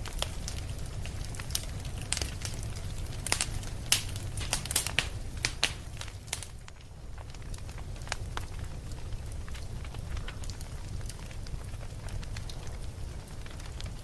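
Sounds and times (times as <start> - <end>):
low rumble of flames: 0.0 - 14.0
wood fire crackling: 0.0 - 14.0
sharp pops and snaps: 1.4 - 6.8.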